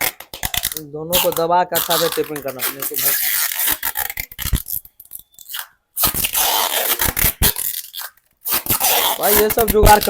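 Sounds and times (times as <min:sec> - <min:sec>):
packing tape ripping off roll: 0:00.0 - 0:10.0.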